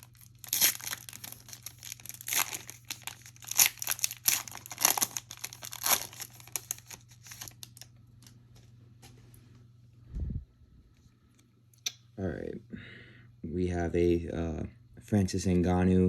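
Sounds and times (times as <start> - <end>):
wrapper tearing and crinkling: 0.0 - 7.9.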